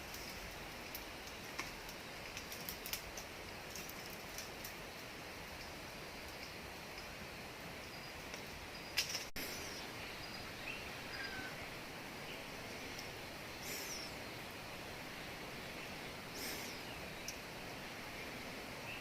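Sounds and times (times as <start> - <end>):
outdoor background hiss: 0.0 - 19.0
faint bird chirps: 7.8 - 12.8, 13.5 - 14.4.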